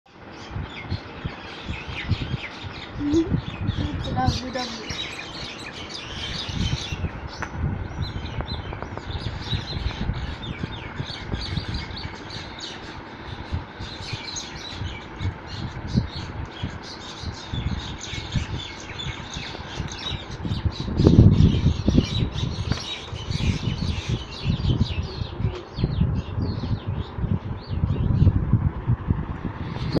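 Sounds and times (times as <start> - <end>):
birds chirping and squawking: 0.1 - 28.6.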